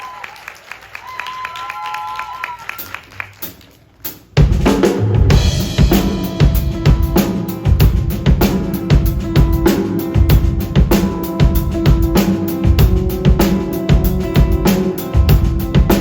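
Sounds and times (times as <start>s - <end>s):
drum kit steady beat: 2.8s - 16.0s
rock band playing live: 4.4s - 16.0s.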